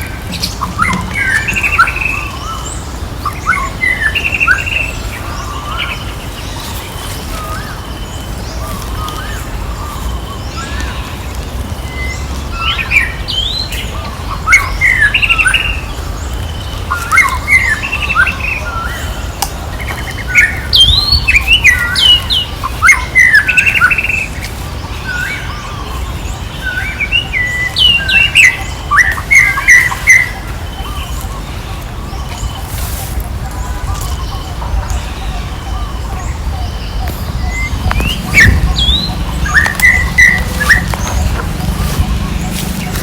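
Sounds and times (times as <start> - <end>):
low rumble: 34.6 - 43.0.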